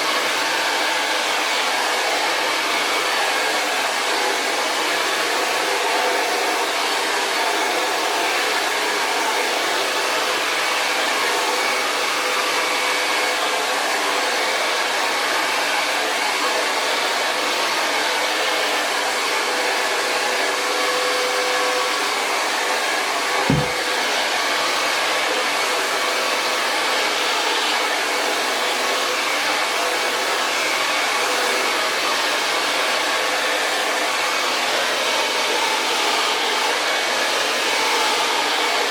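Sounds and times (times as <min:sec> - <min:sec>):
hair dryer blowing: 0:00.0 - 0:38.9
low thump: 0:23.5 - 0:23.8.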